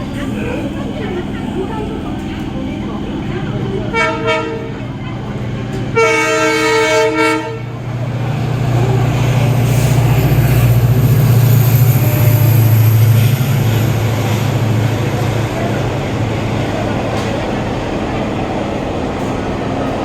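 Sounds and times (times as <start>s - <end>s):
train rumbling: 0.0s - 20.0s
train horn toot: 3.9s - 4.8s, 5.9s - 7.8s.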